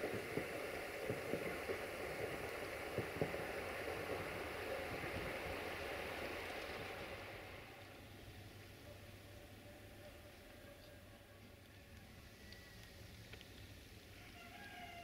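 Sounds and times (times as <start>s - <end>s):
river water rushing: 0.0s - 8.6s
distant train rumble: 0.0s - 14.2s.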